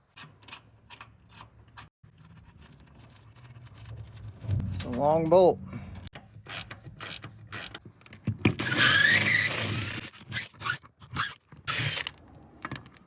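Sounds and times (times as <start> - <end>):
sharp metal clicks and knocks: 6.0 - 8.6
squealing metal scrape: 8.6 - 12.0.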